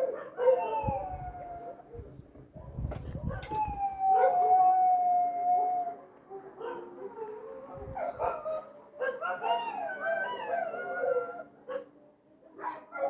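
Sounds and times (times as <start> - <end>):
dog howling and whining: 3.3 - 6.0.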